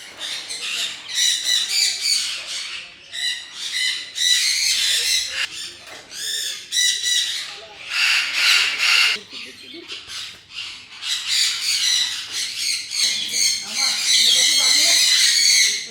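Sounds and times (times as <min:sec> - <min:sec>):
parrots squawking and screeching: 0:00.0 - 0:15.9.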